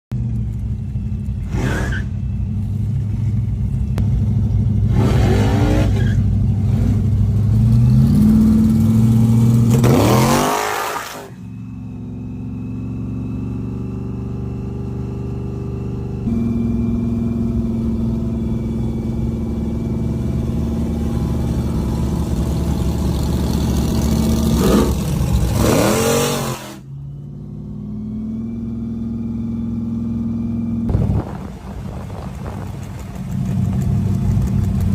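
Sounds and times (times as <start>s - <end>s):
engine accelerating hard: 4.2s - 34.9s
drag car engines idling: 30.9s - 34.9s.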